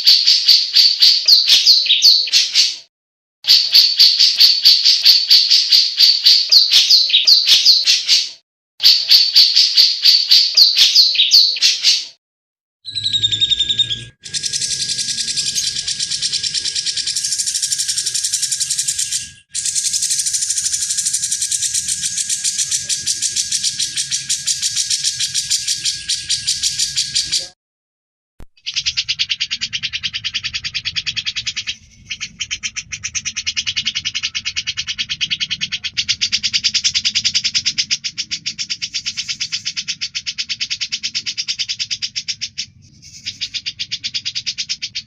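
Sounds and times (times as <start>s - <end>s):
bird singing rapid high notes: 0.0s - 2.8s, 3.5s - 12.1s, 12.9s - 27.6s, 28.6s - 37.4s
fast bird trill: 0.0s - 2.9s, 3.5s - 12.2s, 12.9s - 27.6s, 28.6s - 45.0s.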